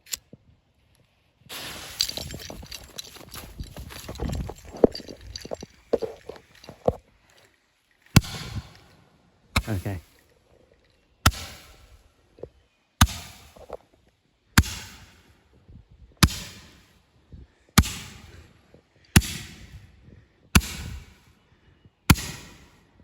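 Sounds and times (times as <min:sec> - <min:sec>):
firework hiss: 0:01.5 - 0:02.4.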